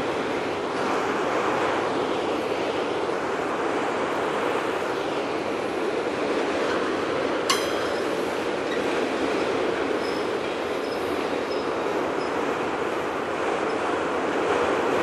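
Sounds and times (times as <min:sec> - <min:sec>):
freight train wheels rumbling on rails: 0:00.0 - 0:15.0
sharp metallic clink: 0:07.5 - 0:08.5.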